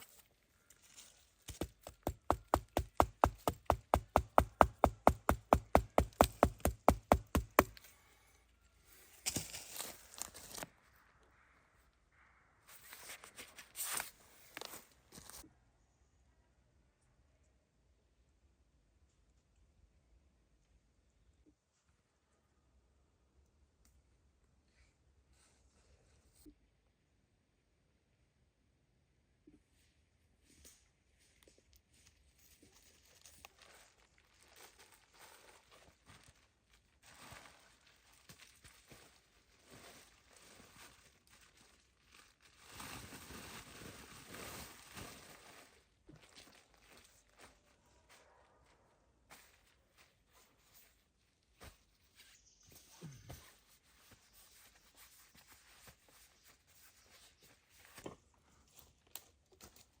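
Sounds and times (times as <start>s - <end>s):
faint rustling and crinkling: 0.0s - 2.1s, 7.6s - 10.8s, 12.7s - 15.5s, 29.5s - 60.0s.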